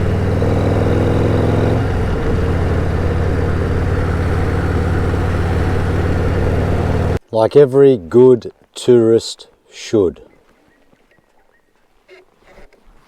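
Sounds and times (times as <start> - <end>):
motorcycle engine shifting gear: 0.0 - 7.2.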